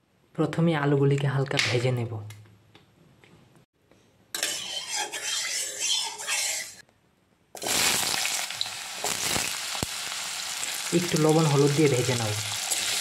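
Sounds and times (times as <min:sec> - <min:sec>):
rough hissing from pan: 0:07.6 - 0:11.8, 0:12.4 - 0:13.0
potatoes sizzling in hot oil: 0:07.6 - 0:13.0.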